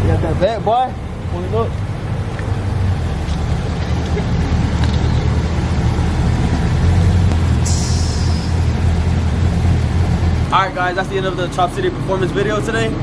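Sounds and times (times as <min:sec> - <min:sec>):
truck engine rumbling: 0:00.0 - 0:13.0
short sharp hiss: 0:07.6 - 0:08.6.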